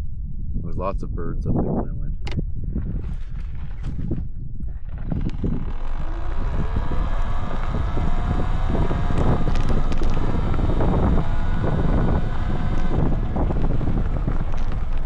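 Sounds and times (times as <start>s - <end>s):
wind buffeting microphone: 0.0s - 15.0s
electric motor whine: 4.8s - 15.0s.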